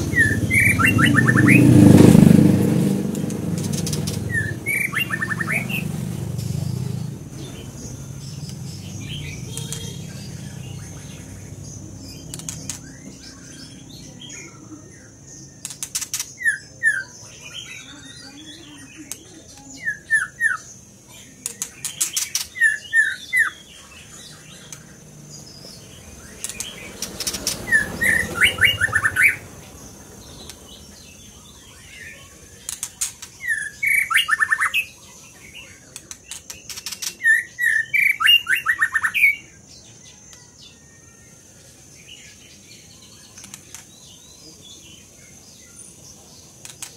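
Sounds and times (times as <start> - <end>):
songbird whistling: 0.0 - 1.8, 3.7 - 5.9, 19.6 - 20.7, 22.0 - 23.7, 27.2 - 29.4, 33.4 - 35.0, 37.0 - 39.5
clicking or fluttering: 15.6 - 16.4, 32.6 - 33.4.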